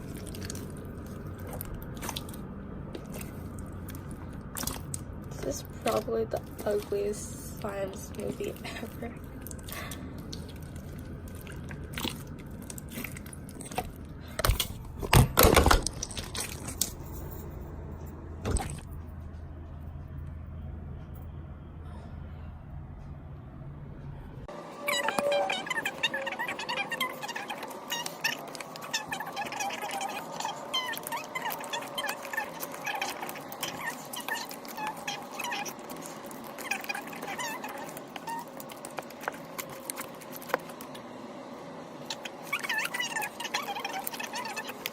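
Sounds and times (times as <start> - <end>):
hands squishing slime: 0.0 - 2.4, 3.0 - 14.7, 26.6 - 41.0
slime squishing with wet pops: 0.0 - 14.6.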